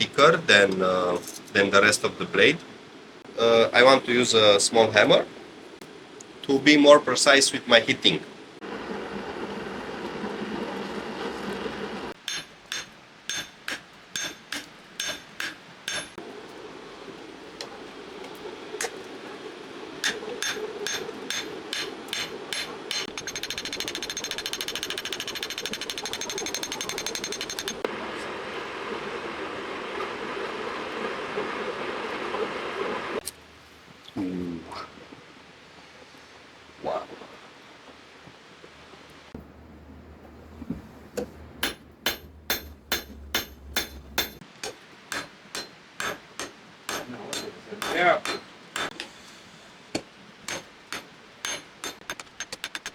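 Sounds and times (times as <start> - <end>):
hammer striking steel on anvil: 12.2 - 16.2, 20.0 - 27.9, 41.6 - 49.1, 50.5 - 52.9.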